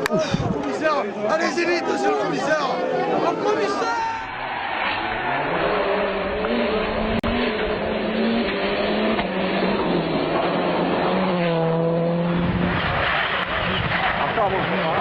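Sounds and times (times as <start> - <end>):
tyre and road noise: 0.0 - 15.0
rally car engine changing gears: 4.4 - 15.0.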